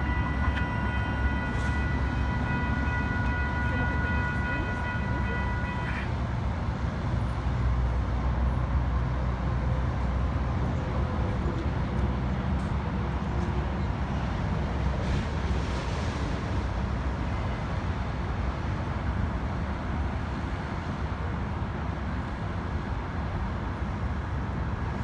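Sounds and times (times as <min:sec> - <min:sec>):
railroad crossing bells ringing: 0:00.0 - 0:06.0.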